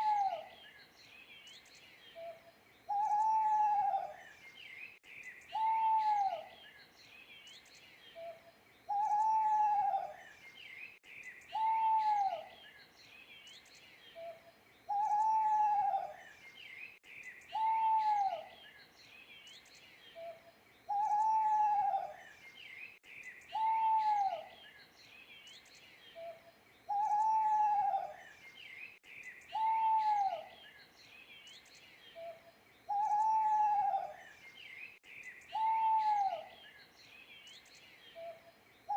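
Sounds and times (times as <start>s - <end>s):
owl hooting: 0.0s - 0.5s, 2.2s - 4.2s, 5.5s - 6.5s, 8.2s - 10.2s, 11.5s - 12.5s, 14.2s - 16.2s, 17.5s - 18.5s, 20.2s - 22.2s, 23.5s - 24.5s, 26.2s - 28.2s, 29.5s - 30.6s, 32.2s - 34.2s, 35.5s - 36.6s
faint songbird chirps: 0.0s - 38.9s.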